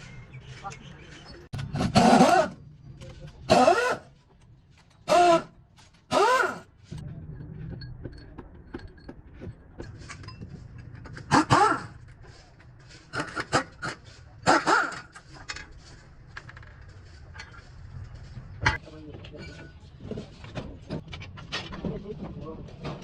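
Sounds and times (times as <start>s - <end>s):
low steady rumble: 6.8s - 11.3s.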